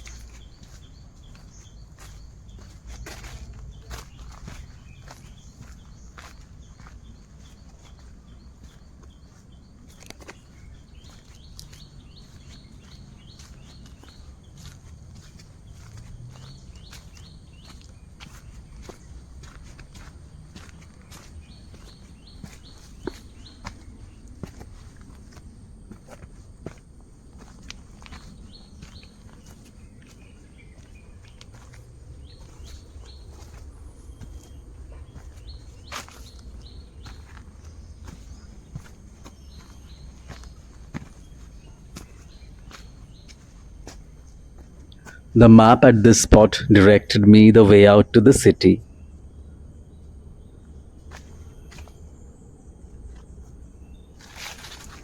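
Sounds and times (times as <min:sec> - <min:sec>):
birds calling: 0:00.0 - 0:24.7
footsteps on trail: 0:00.0 - 0:45.2, 0:54.2 - 0:55.0.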